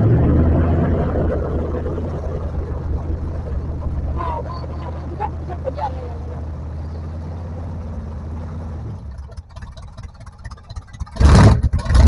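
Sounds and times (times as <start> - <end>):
loud surge of noise: 0.0 - 10.0
off-road vehicle engine running: 0.0 - 12.0.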